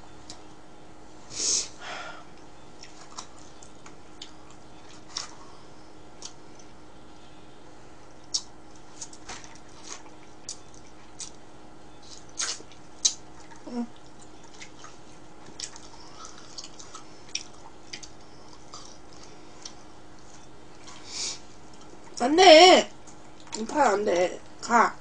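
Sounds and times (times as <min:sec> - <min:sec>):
chewing and lip smacks: 0:06.2 - 0:06.8, 0:08.2 - 0:11.4, 0:12.0 - 0:22.2, 0:23.0 - 0:23.6.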